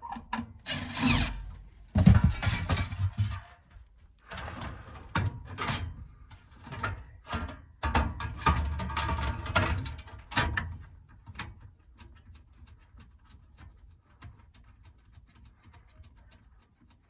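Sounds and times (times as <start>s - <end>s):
hard objects clattering and knocking: 0.6s - 3.7s.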